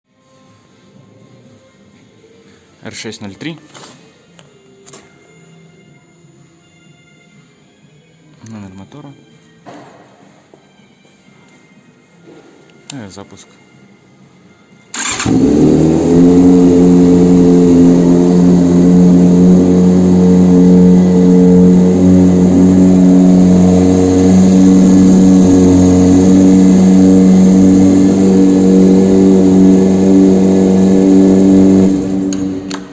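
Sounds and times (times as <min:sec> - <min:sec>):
engine starting and idling: 0:14.9 - 0:32.9.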